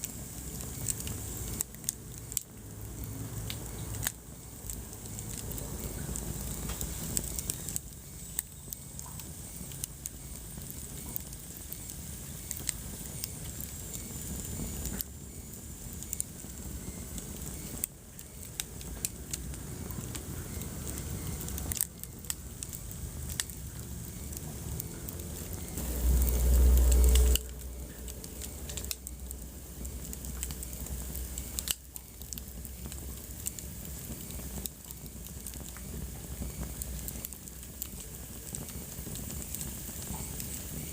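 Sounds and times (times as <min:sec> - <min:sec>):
wood fire crackling: 0:00.0 - 0:40.9
loud low rumble: 0:23.1 - 0:31.4.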